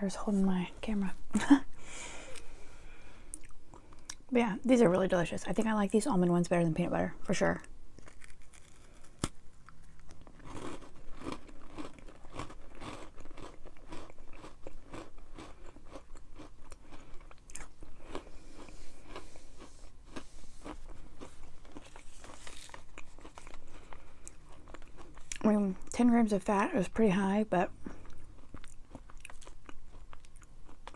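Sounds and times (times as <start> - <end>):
person chewing crunchy food: 3.3 - 4.2, 7.9 - 25.9, 27.7 - 30.9.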